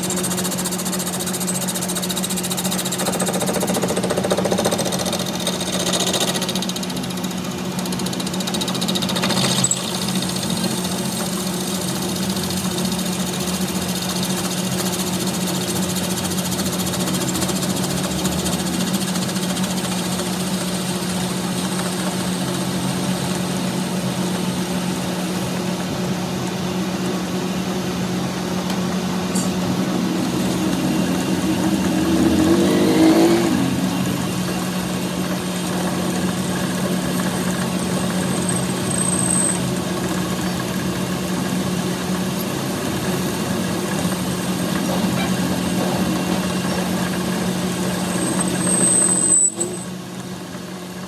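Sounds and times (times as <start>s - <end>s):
machine motor humming: 21.2s - 38.8s.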